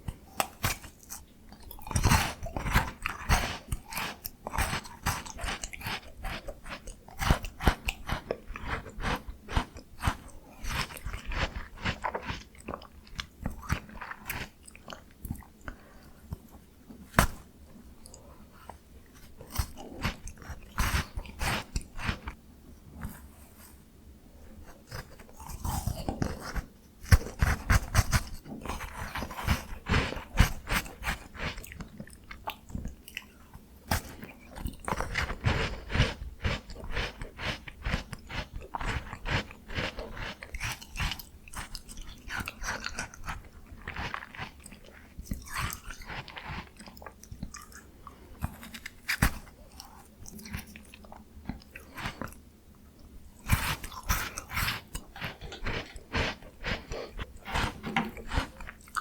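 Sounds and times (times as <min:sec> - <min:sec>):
wet chewing: 0:00.0 - 0:17.4, 0:18.0 - 0:22.4, 0:24.6 - 0:52.4, 0:53.0 - 0:59.0
crunching bites of ice cream: 0:24.8 - 0:52.4.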